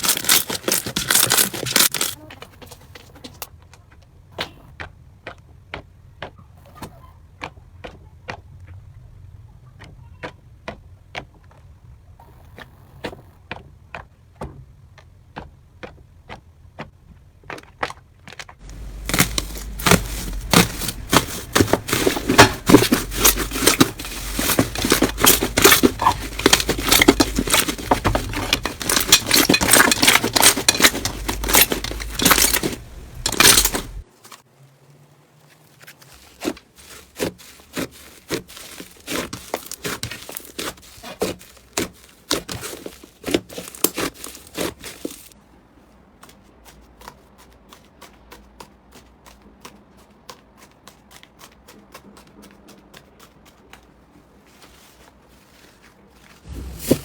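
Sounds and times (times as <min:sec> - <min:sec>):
crunchy slime crackling and popping: 0:18.6 - 0:34.1, 0:35.9 - 0:45.4.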